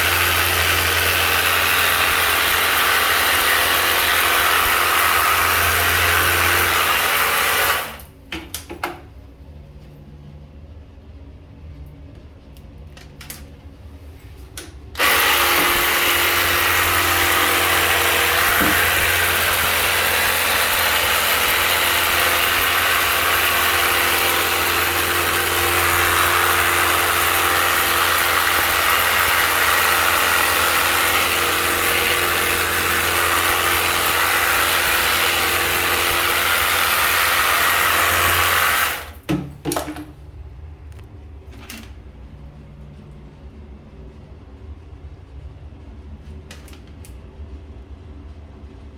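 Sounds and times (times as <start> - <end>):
pressure washer pump humming: 0.0 - 8.2, 15.0 - 40.1.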